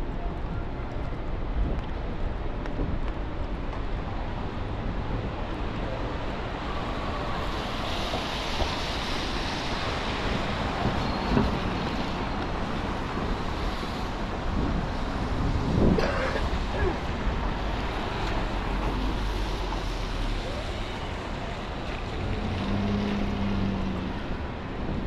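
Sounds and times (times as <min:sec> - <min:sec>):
low traffic rumble: 0:00.0 - 0:25.0
tyres hissing on wet road: 0:05.2 - 0:25.0.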